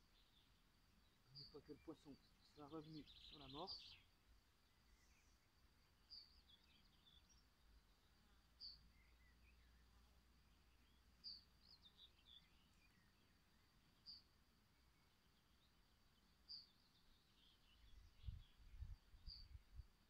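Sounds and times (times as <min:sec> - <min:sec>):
bird chirping: 0:00.0 - 0:20.0
soft bird twittering: 0:00.1 - 0:04.2, 0:08.1 - 0:13.4.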